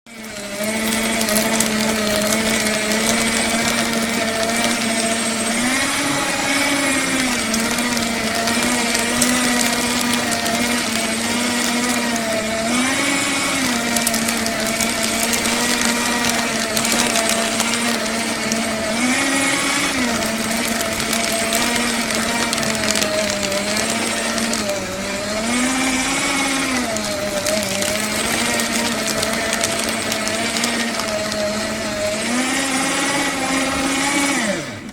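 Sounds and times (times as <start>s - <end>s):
paper shredder running: 0.0s - 34.9s.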